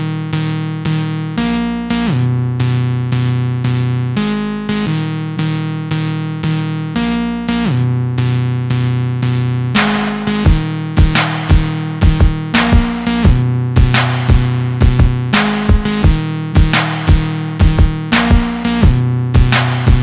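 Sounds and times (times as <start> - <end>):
synthesizer chords: 9.8 - 20.0.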